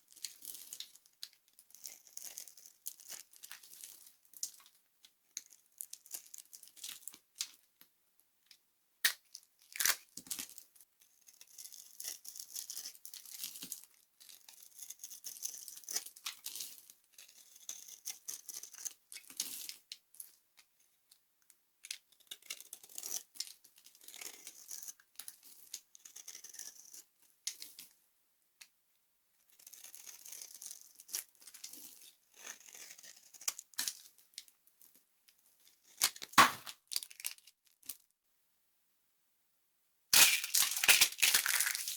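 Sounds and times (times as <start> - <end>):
dry soap crunching: 29.6 - 34.5, 35.8 - 37.9, 40.2 - 41.9
sharp snaps: 36.3 - 36.8.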